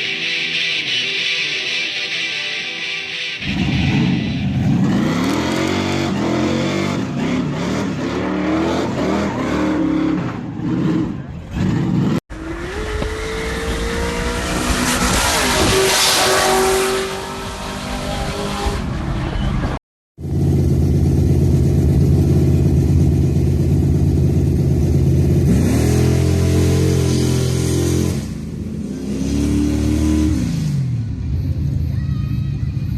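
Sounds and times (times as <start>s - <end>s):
truck engine revving: 0.0s - 31.1s
truck engine deep steady tone: 19.2s - 25.6s.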